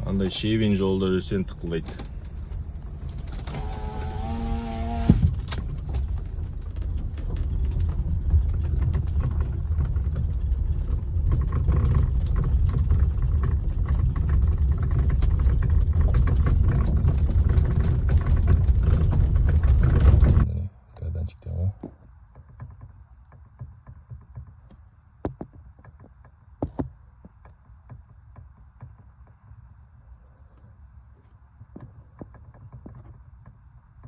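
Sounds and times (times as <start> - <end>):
car road rumble on gravel: 0.0 - 20.5
sharp steering knocks: 0.0 - 20.5.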